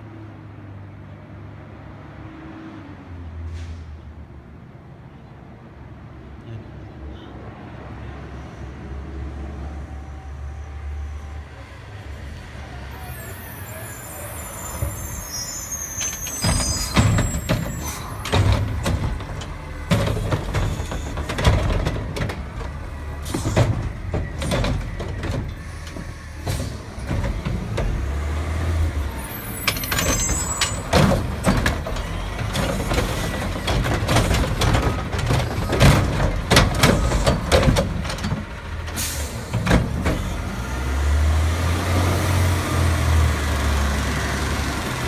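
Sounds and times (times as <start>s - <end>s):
garbage truck diesel engine: 7.9s - 45.0s
high squeal: 12.6s - 19.1s, 28.9s - 33.5s
metal clanks and bangs: 14.6s - 40.5s.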